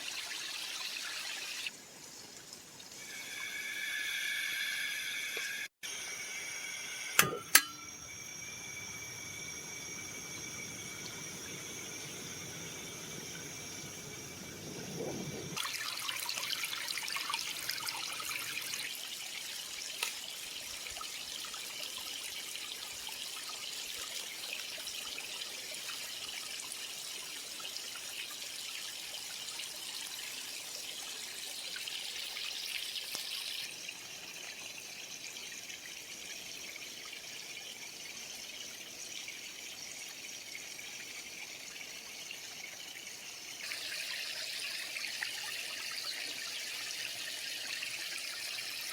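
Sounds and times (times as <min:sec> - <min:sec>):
creek water trickling over stones: 0:15.6 - 0:48.9.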